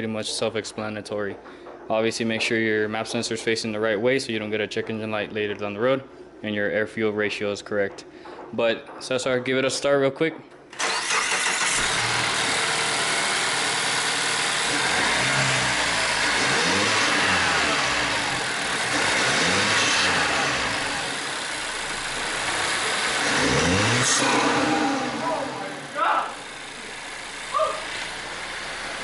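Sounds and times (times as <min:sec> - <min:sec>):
car engine revving: 0:10.8 - 0:29.0
engine hiss as revs drop: 0:10.8 - 0:29.0.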